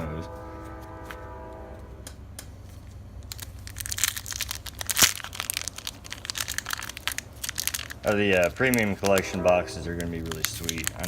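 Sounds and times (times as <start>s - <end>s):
foil wrapper crinkling and tearing: 3.2s - 11.0s.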